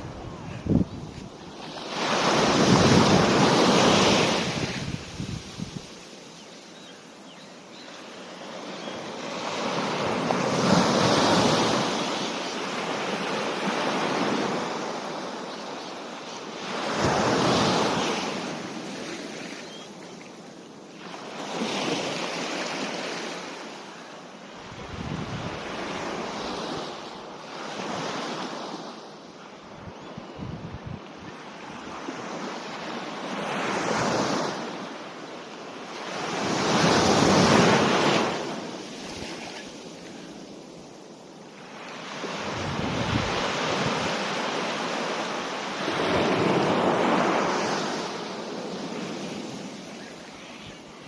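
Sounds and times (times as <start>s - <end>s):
wind on microphone: 0.0s - 1.6s, 2.2s - 6.0s, 24.7s - 25.7s, 29.8s - 31.4s, 42.4s - 44.2s
waves breaking on beach: 0.0s - 29.2s, 31.5s - 51.0s.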